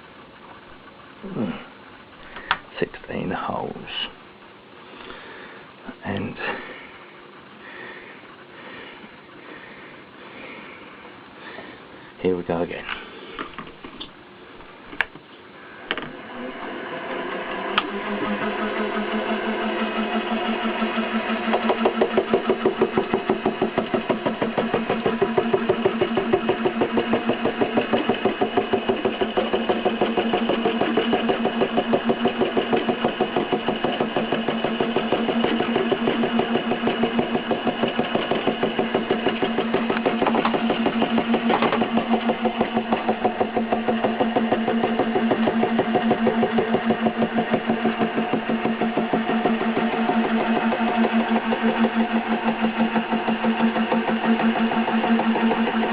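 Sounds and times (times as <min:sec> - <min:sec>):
milling machine cutting plastic: 0:15.8 - 0:55.9.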